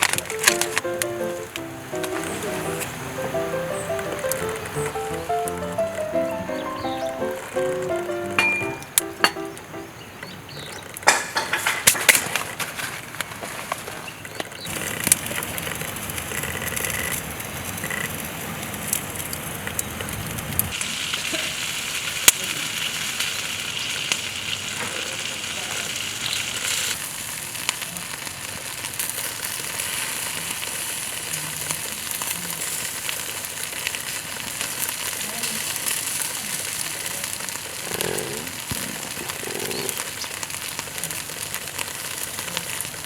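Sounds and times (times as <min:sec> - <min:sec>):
food sizzling in a pan: 0:20.7 - 0:43.0.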